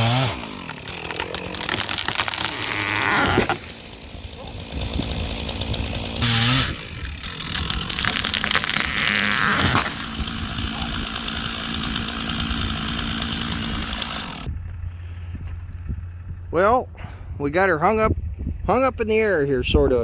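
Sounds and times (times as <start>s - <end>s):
chainsaw cutting: 0.0s - 14.5s
low hum: 14.4s - 18.7s.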